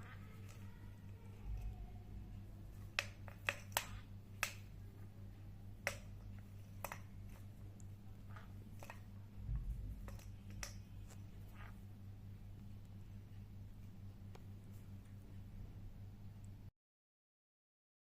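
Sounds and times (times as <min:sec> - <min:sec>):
steady low hum: 0:00.0 - 0:16.7
sharp irregular clicks and taps: 0:02.7 - 0:04.8, 0:05.7 - 0:09.1, 0:10.0 - 0:11.2.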